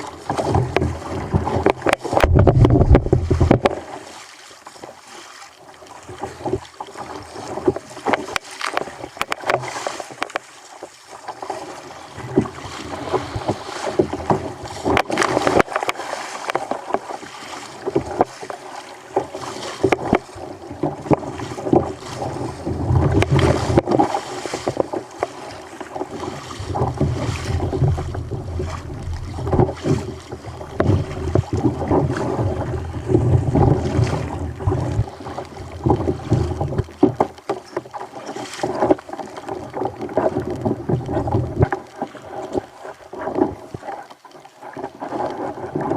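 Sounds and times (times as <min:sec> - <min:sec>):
water splashing against kayak: 0:00.0 - 0:45.9
short knocks on kayak: 0:01.6 - 0:03.7
wind buffeting microphone: 0:02.2 - 0:03.7, 0:26.2 - 0:35.1.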